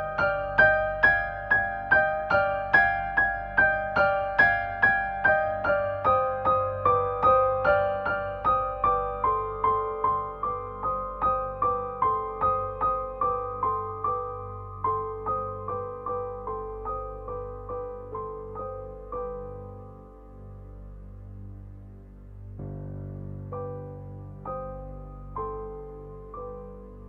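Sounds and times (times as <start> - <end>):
soft piano-like keyboard notes: 0.0 - 27.0.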